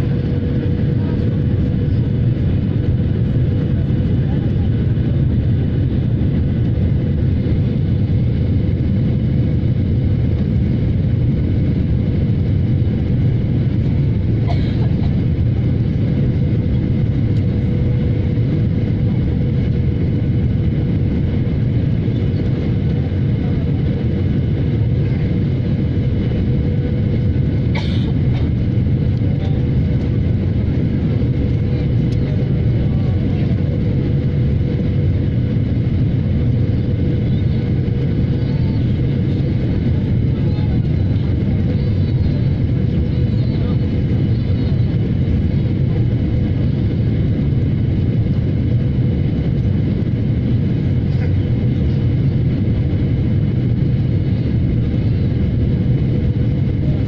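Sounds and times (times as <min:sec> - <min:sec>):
jet engine cabin rumble: 0:00.0 - 0:57.0.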